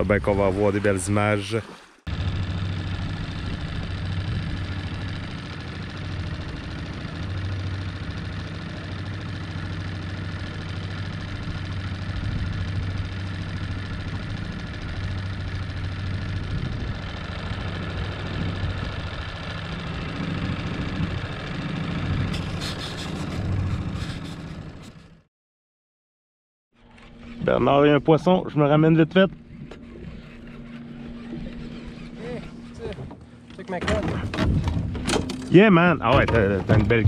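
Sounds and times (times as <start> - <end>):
outboard motor running: 0.0 - 25.3, 26.8 - 37.0.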